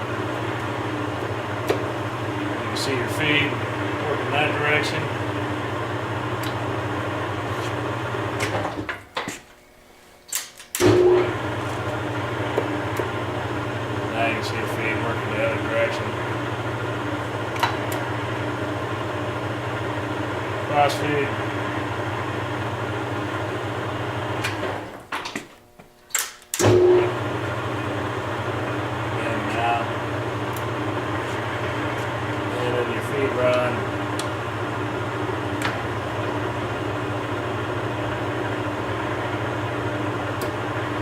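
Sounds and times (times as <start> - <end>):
lathe running: 0.0 - 8.9, 10.8 - 25.0, 26.6 - 41.0
lathe controls clunking: 0.2 - 4.9, 6.3 - 6.8, 7.5 - 9.5, 10.3 - 13.3, 17.2 - 18.4, 24.3 - 25.5, 26.1 - 27.2, 28.7 - 36.8, 38.4 - 41.0.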